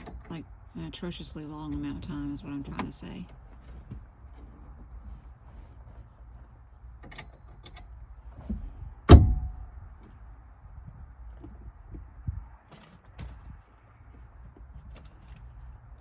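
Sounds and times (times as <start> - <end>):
loud metallic clank: 9.1 - 9.7.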